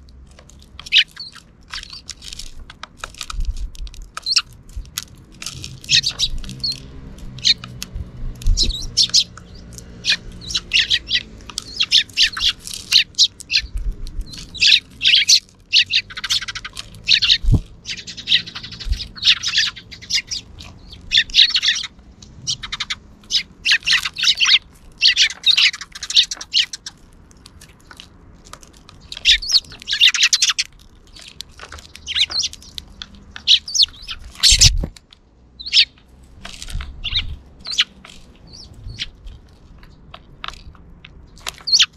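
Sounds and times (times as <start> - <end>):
sparrows chirping: 0.0 - 41.9.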